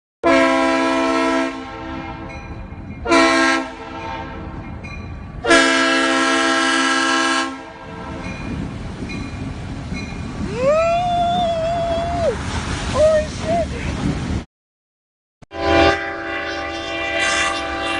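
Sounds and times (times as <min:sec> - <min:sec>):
multi-tone air horn blasts: 0:00.2 - 0:02.3, 0:03.0 - 0:04.4, 0:05.4 - 0:08.2, 0:15.5 - 0:17.9.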